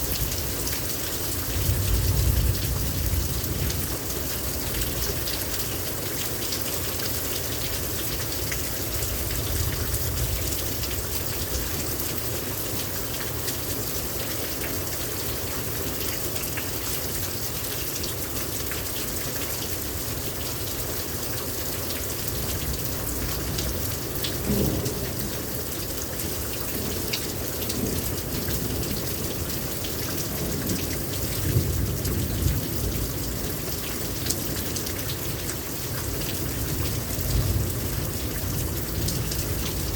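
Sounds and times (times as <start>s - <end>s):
heavy rain pouring: 0.0s - 39.9s
thunder rumbling: 24.4s - 25.4s.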